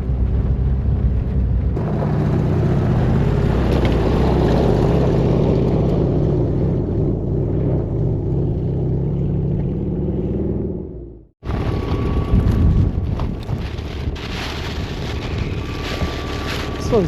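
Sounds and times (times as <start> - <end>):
van engine running under load: 0.0 - 9.1, 10.9 - 17.0
tyres rolling on dirt: 11.4 - 17.0.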